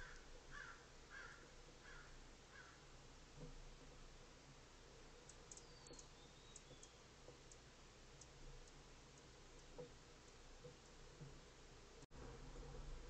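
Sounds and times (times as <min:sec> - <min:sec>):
small bird chip notes: 0:05.2 - 0:11.0.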